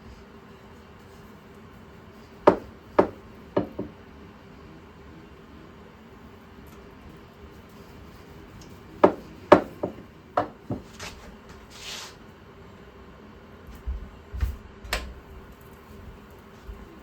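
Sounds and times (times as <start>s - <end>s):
short hiss: 11.0s - 12.2s
click: 14.9s - 16.4s.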